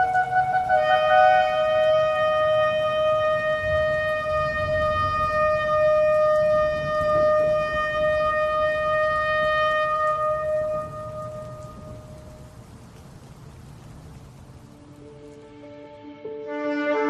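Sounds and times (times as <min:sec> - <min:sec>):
ram's horn blast: 0:00.0 - 0:12.1.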